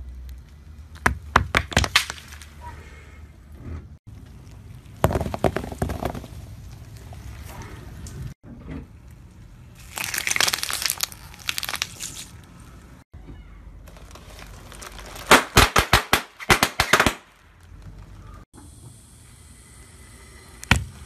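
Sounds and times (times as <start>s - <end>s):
tyre crunching plastic pieces: 9.8s - 12.5s, 13.8s - 18.1s.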